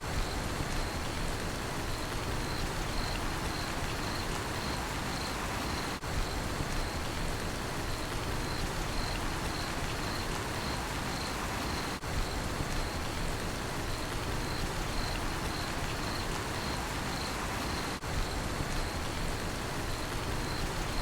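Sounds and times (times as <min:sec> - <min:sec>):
steady rain falling: 0:00.0 - 0:21.0
cricket chirping: 0:01.9 - 0:07.2, 0:07.8 - 0:13.2, 0:13.8 - 0:18.0, 0:19.8 - 0:21.0.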